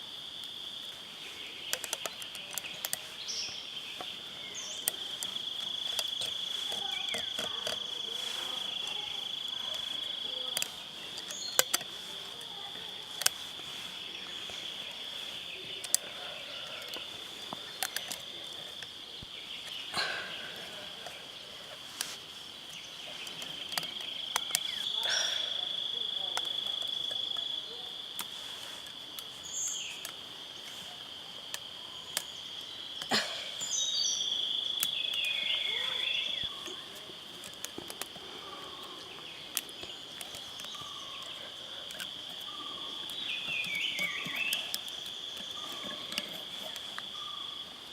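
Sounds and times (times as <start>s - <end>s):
insects droning: 0.0s - 47.9s
sharp clicks and snaps: 1.7s - 3.1s, 4.8s - 12.4s, 13.1s - 13.6s, 22.0s - 25.0s, 37.4s - 38.3s, 39.0s - 47.1s.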